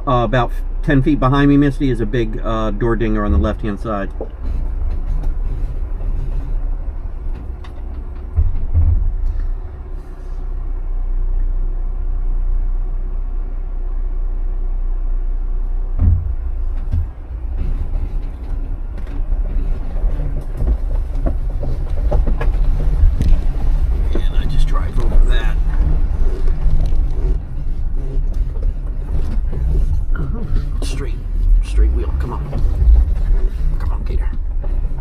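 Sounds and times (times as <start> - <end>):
vehicle engine and tyres rumbling: 0.0 - 35.0
heavy thumps: 3.0 - 10.1, 15.9 - 35.0.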